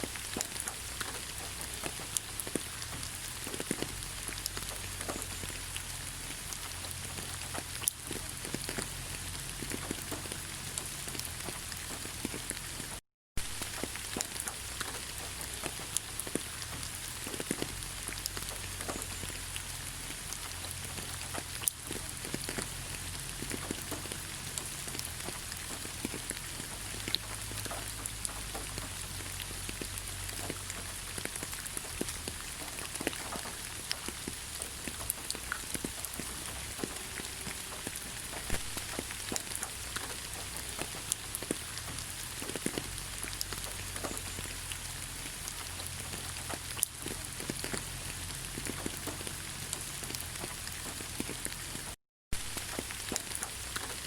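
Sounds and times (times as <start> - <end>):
raindrops ticking close by: 0.0 - 54.0
steady rain in a forest: 0.0 - 54.0.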